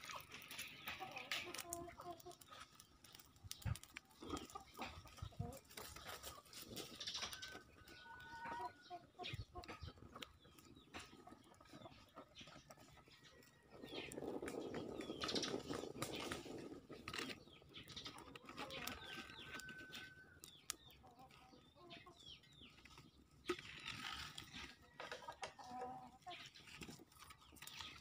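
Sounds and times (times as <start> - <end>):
wood fire crackling: 0.0 - 21.1
small birds chirping: 0.0 - 28.0.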